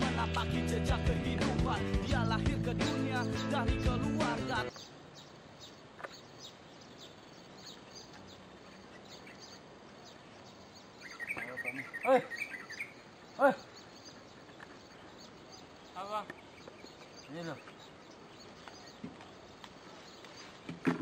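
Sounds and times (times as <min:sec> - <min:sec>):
bird chirping: 0:02.1 - 0:21.0
loud bird calls: 0:04.5 - 0:21.0.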